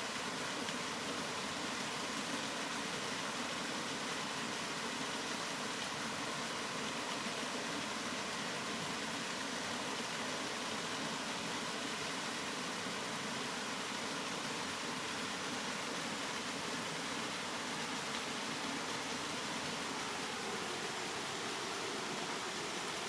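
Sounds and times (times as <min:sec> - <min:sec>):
steady rain: 0:00.0 - 0:23.0.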